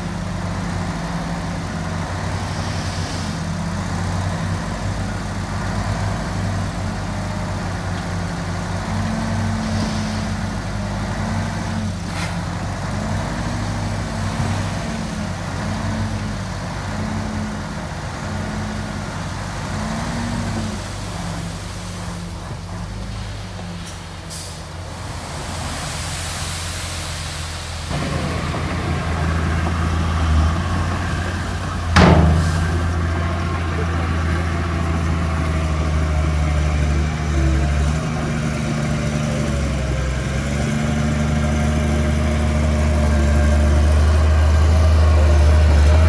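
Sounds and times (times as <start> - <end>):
heavy diesel engine working: 27.9 - 46.0.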